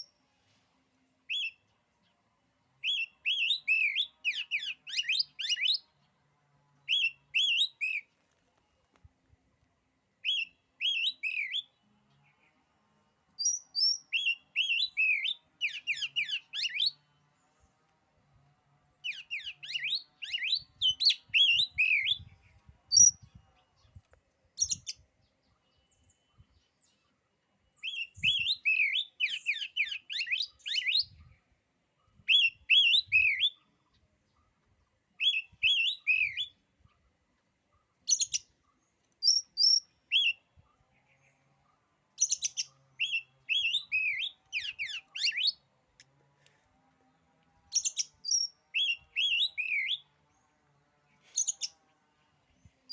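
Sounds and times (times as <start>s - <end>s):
songbird whistling: 1.3s - 1.6s, 2.8s - 5.8s, 6.9s - 8.1s, 10.2s - 11.7s, 13.4s - 17.0s, 19.0s - 22.3s, 27.8s - 31.3s, 32.3s - 33.6s, 35.2s - 36.6s, 39.2s - 40.5s, 42.2s - 45.6s, 47.7s - 50.1s.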